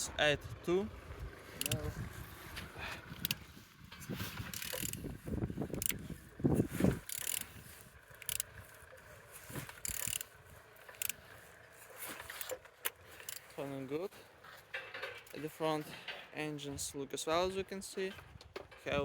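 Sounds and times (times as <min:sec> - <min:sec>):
engine turning rumble: 0:00.0 - 0:19.0
ratchet clicking: 0:01.6 - 0:01.9, 0:03.2 - 0:03.4, 0:04.4 - 0:06.2, 0:07.0 - 0:08.9, 0:09.7 - 0:11.3, 0:12.2 - 0:13.5.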